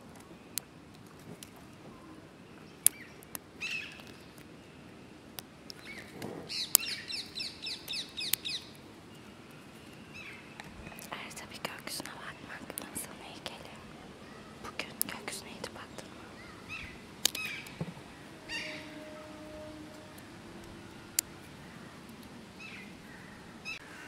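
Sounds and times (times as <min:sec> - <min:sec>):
twig clicking and crackling: 0:00.0 - 0:01.8, 0:02.8 - 0:04.5, 0:05.3 - 0:08.8, 0:10.6 - 0:13.7, 0:14.8 - 0:16.0, 0:16.7 - 0:17.9
bird chirping: 0:02.0 - 0:23.9.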